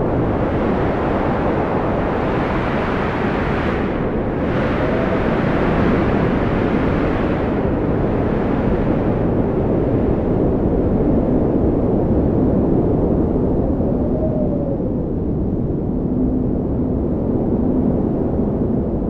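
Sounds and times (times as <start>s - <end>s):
strong wind blowing: 0.0s - 19.0s
wind whistling: 0.0s - 19.0s.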